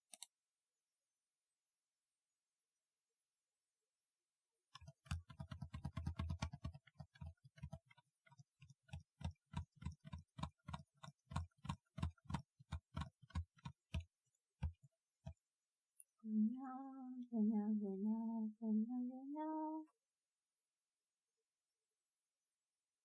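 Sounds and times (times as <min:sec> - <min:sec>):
typewriter-style keyboard typing: 0:04.8 - 0:15.4.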